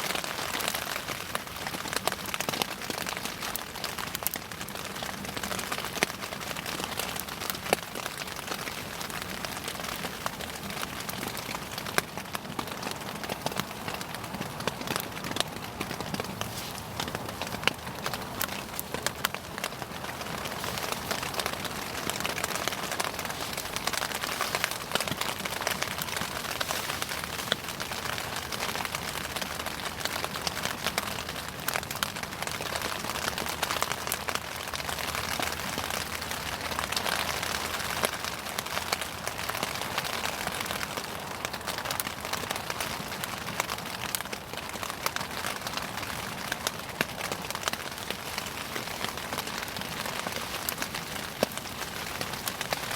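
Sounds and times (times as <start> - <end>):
bonfire crackles and pops: 0.0 - 52.9
bonfire hissing: 12.6 - 30.2.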